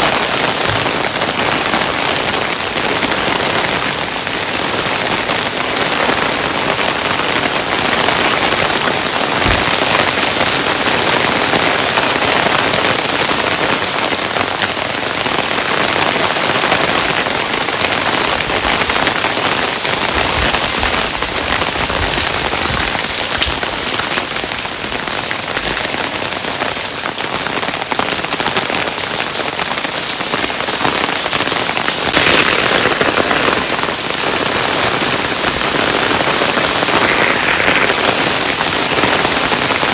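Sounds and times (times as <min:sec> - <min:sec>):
hailstones pattering on hard surface: 0:00.0 - 0:39.9
deeper thuds: 0:09.4 - 0:10.1.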